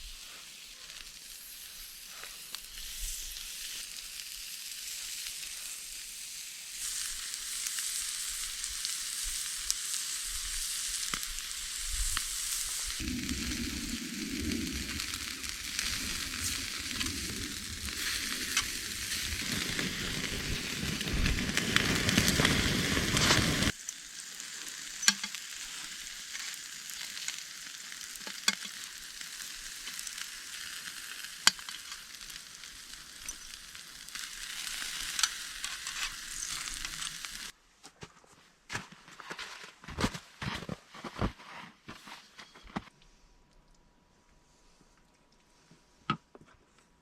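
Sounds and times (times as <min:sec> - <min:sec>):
food sizzling in a pan: 0:00.0 - 0:37.6.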